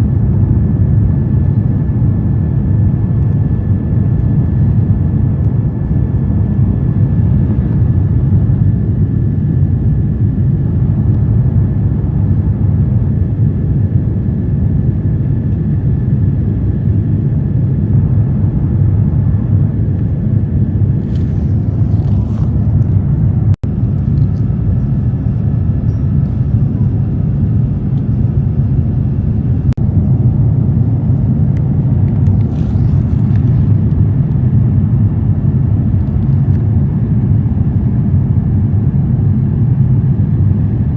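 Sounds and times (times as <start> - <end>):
airplane cabin rumble: 0.0 - 40.9.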